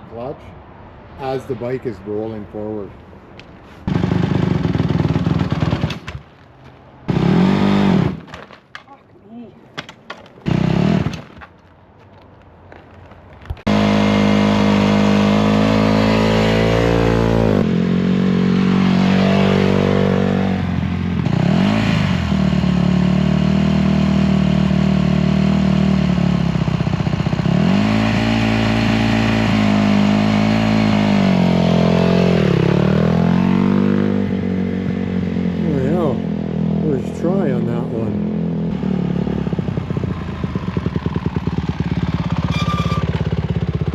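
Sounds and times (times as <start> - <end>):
dirt bike engine revving: 3.9 - 6.1, 7.1 - 8.3, 10.4 - 11.3, 13.7 - 43.9.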